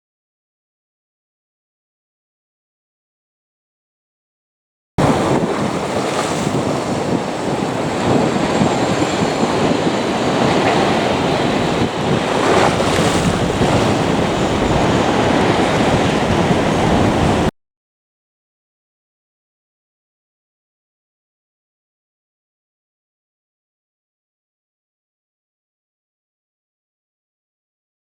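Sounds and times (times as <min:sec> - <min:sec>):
jet engines rushing: 0:05.0 - 0:17.5
wind buffeting microphone: 0:05.0 - 0:17.5.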